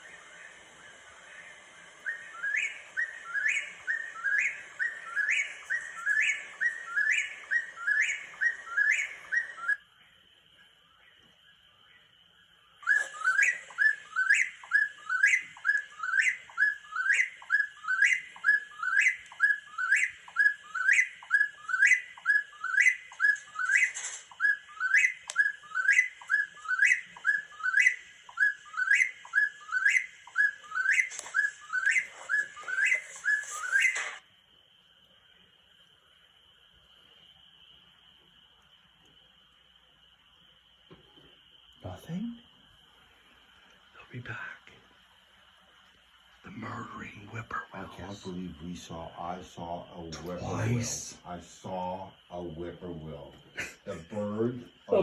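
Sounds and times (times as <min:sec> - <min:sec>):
whistled bird call: 0:00.0 - 0:09.9, 0:10.7 - 0:34.2.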